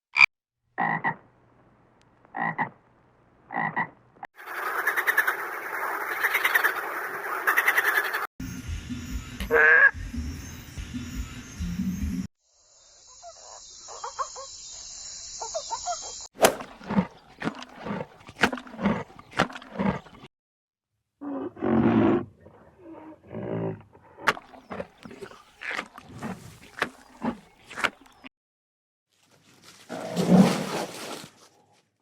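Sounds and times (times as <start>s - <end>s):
wild animal rough repeated calls: 16.4s - 20.3s, 22.8s - 28.2s.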